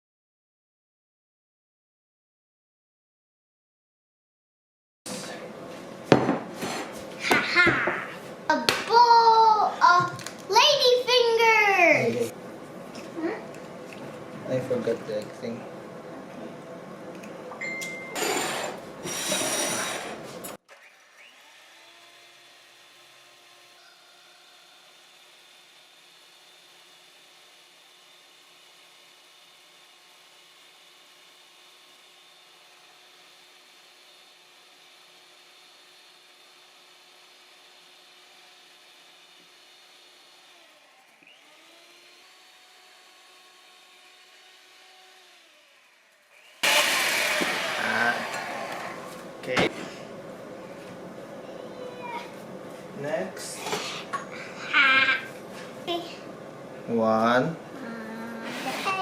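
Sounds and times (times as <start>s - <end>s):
small electric motor running: 18.2s - 49.3s.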